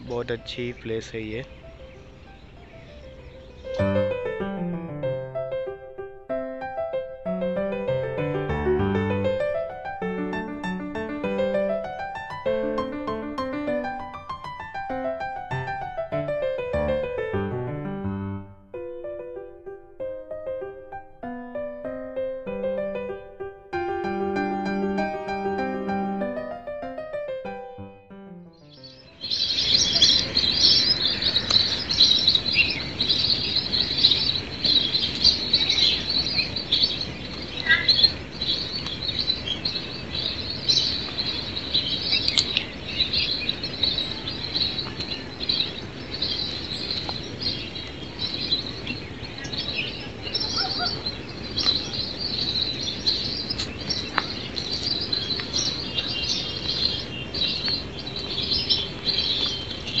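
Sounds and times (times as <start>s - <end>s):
chorus of birds chirping: 0.0s - 4.5s, 7.5s - 17.4s, 28.6s - 60.0s
wavering bird call: 49.9s - 52.1s.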